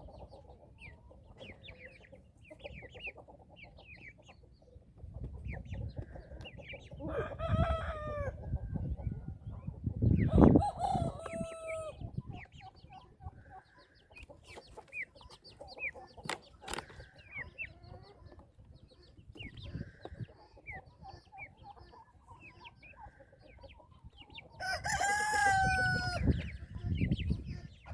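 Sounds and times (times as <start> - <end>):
chicks peeping: 0.0 - 27.9
rooster crowing: 7.1 - 8.4, 10.3 - 12.0, 24.6 - 26.3.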